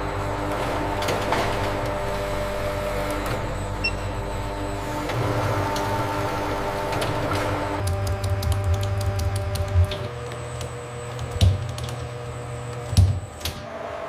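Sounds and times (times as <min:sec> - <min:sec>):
machinery humming: 0:00.0 - 0:14.0
rapid irregular clicking: 0:07.8 - 0:13.5.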